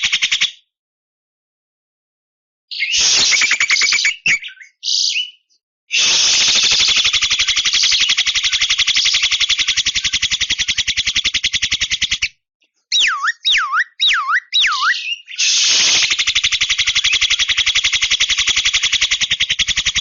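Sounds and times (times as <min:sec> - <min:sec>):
myna rattling call: 0:06.0 - 0:12.3, 0:12.9 - 0:20.0.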